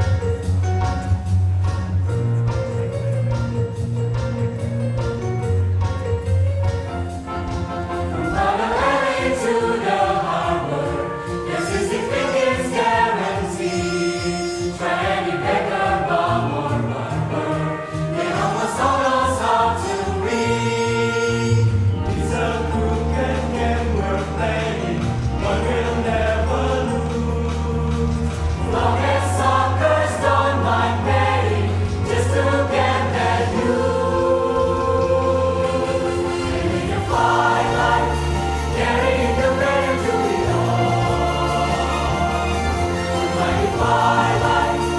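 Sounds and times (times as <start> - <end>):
instrumental accompaniment: 0.0 - 44.9
mixed choir singing: 7.2 - 44.9
low bass line: 20.5 - 44.9.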